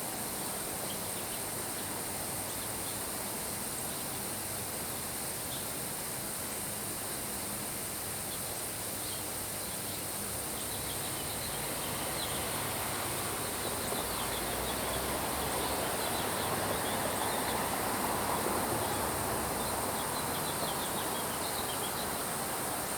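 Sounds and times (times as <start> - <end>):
small birds chirping: 9.0 - 17.8, 18.8 - 22.5.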